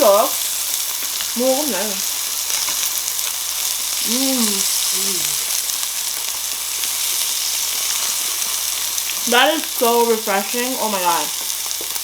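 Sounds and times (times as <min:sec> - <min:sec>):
meat sizzling on a grill: 0:00.0 - 0:12.0
short voice sound: 0:04.0 - 0:05.5.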